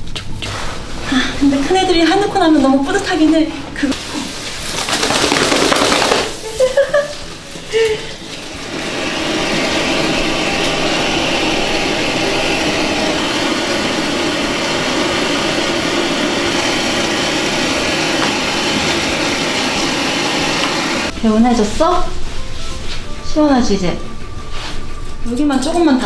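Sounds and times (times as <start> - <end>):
pet blow dryer rushing air: 8.4 - 21.1.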